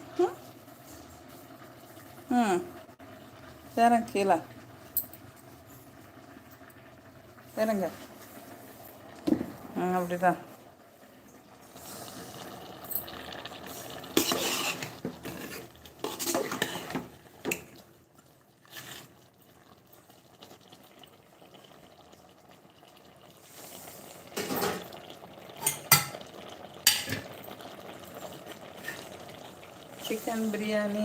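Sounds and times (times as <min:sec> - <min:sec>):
utensils clattering against pots: 0:14.1 - 0:17.6, 0:25.6 - 0:26.3, 0:26.9 - 0:27.4.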